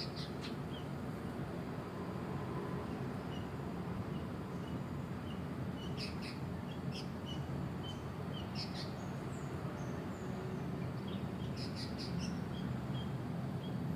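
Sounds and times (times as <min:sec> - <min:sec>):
bulbuls chirping: 0:00.0 - 0:00.9, 0:04.1 - 0:13.8
sharp bird calls: 0:00.0 - 0:00.9, 0:04.2 - 0:10.2, 0:11.0 - 0:13.8.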